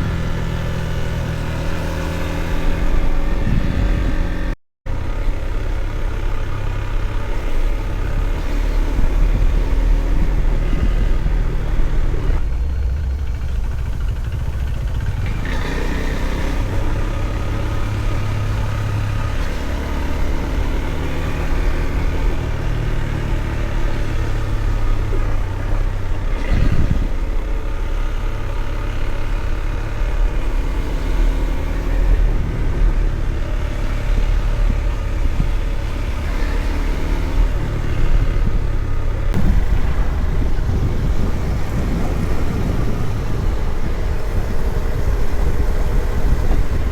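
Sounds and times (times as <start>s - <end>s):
motorcycle engine running: 0.0s - 46.9s
wind and road noise: 0.0s - 46.9s.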